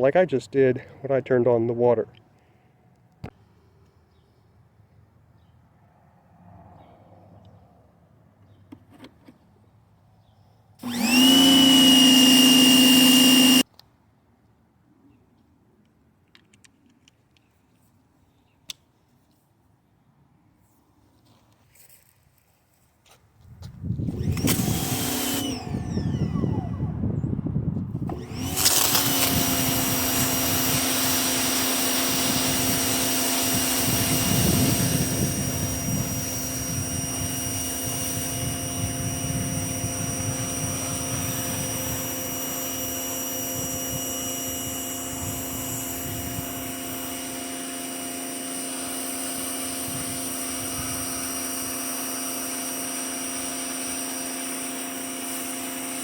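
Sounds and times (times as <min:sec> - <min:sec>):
pressure washer motor and pump: 0:10.8 - 0:13.6, 0:24.0 - 0:27.2, 0:27.9 - 0:56.0.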